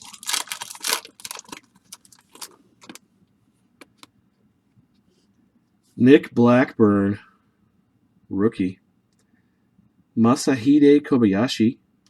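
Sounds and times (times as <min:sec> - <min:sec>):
card pack wrapper crinkling: 0:00.0 - 0:03.0.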